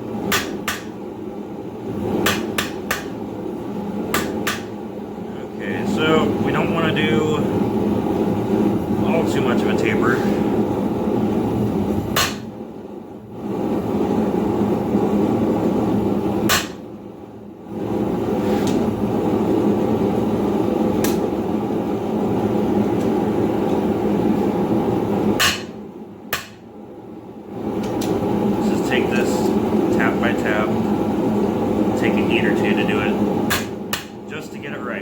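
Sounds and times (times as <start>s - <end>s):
hammer striking steel on anvil: 0.3s - 1.0s, 2.2s - 3.2s, 4.1s - 4.7s, 12.2s - 12.5s, 16.5s - 16.8s, 25.4s - 26.6s.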